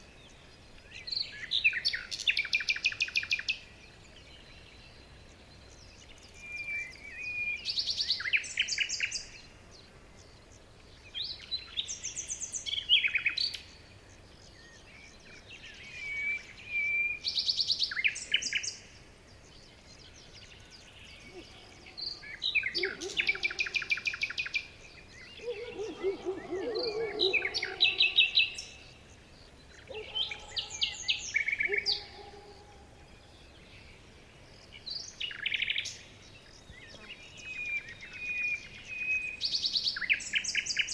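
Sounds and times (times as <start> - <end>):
songbirds trilling and chirping: 0.0 - 40.9
lower-pitched bird call: 25.4 - 28.6.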